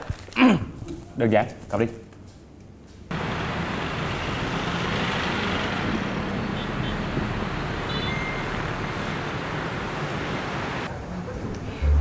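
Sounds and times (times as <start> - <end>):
cars and motorbikes passing: 3.1 - 12.0.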